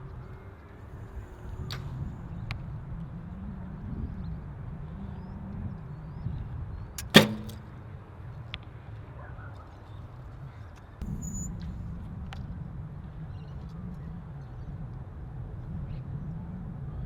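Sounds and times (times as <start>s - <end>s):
bow string release crack: 7.0s - 7.6s.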